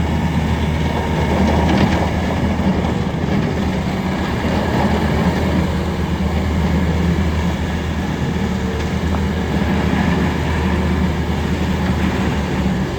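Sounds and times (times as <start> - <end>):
diesel engine droning: 0.0 - 12.9.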